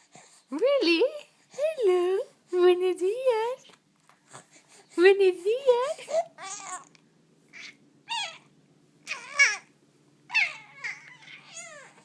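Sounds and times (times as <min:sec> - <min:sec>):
baby babbling and cooing: 0:06.0 - 0:09.7, 0:10.3 - 0:12.0.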